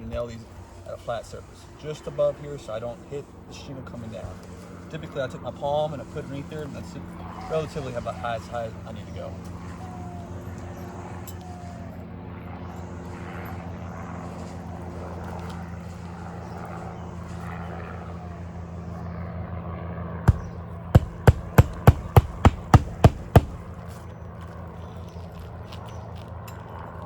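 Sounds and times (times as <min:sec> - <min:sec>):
steady low hum: 0:20.2 - 0:23.9
hammer striking nail: 0:20.3 - 0:23.7.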